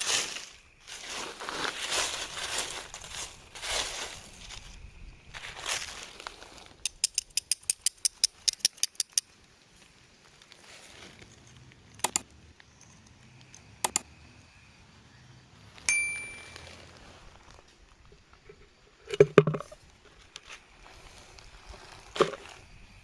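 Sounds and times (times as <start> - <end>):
sharp clicks: 6.8 - 9.3, 11.9 - 12.3, 13.4 - 14.1
metallic clink ringing: 15.9 - 16.9.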